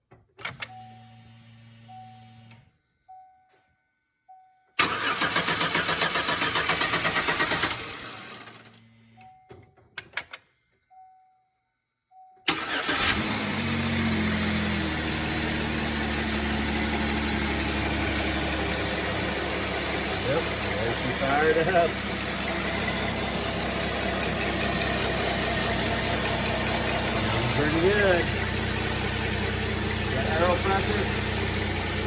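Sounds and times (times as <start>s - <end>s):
starter motor cranking: 4.8s - 8.7s, 12.5s - 13.8s
engine idling fast: 13.4s - 32.0s.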